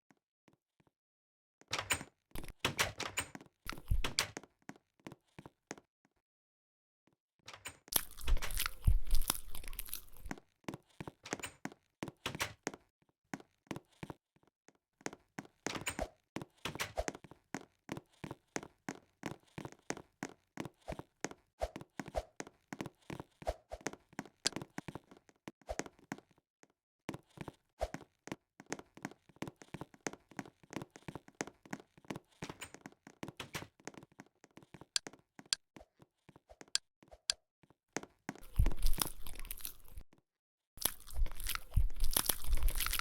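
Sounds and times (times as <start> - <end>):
chewing and biting crunches: 3.7 - 4.1, 7.9 - 10.4, 38.4 - 40.0, 40.8 - 43.0.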